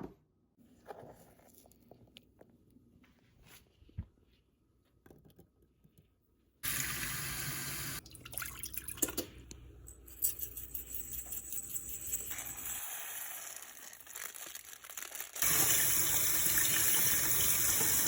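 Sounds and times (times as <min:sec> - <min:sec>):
water running into a sink: 0:06.6 - 0:09.3, 0:15.4 - 0:18.0
light clinks and clatter: 0:09.9 - 0:12.7.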